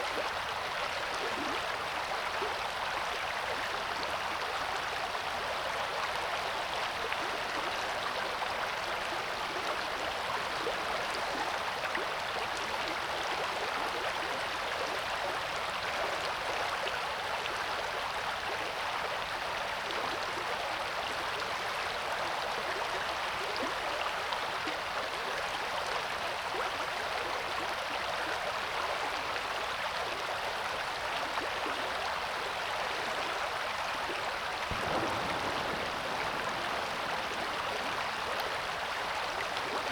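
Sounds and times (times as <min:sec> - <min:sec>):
river water rushing: 0:34.7 - 0:39.9.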